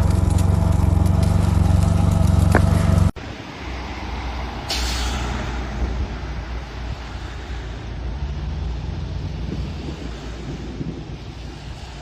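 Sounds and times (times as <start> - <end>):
low rumble: 0.0 - 3.2
heavy vehicle engine humming: 0.0 - 12.0
short hiss: 4.7 - 5.3.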